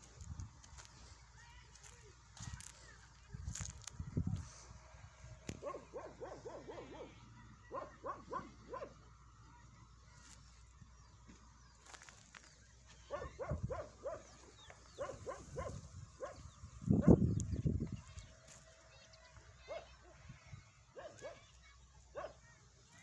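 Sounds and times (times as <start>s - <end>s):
dog barking: 5.6s - 9.0s, 13.0s - 17.2s, 19.6s - 20.2s, 21.0s - 21.5s, 22.1s - 22.5s.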